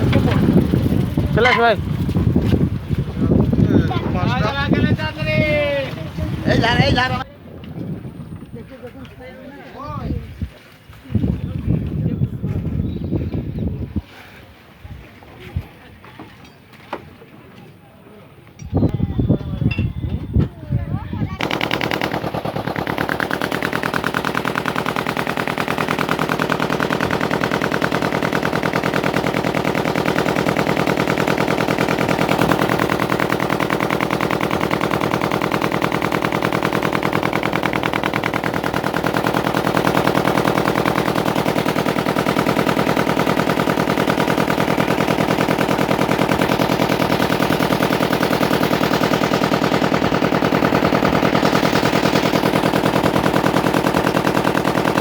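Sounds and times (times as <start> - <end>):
boat engine chugging: 0.0 - 7.3, 21.3 - 55.0.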